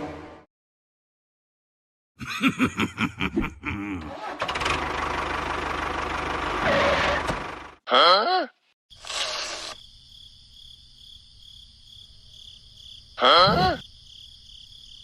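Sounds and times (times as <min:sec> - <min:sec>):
engine cranking and starting: 0:04.0 - 0:07.8.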